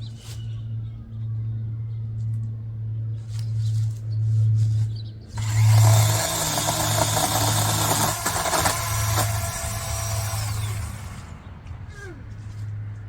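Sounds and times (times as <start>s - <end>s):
chainsaw running: 5.4s - 11.4s.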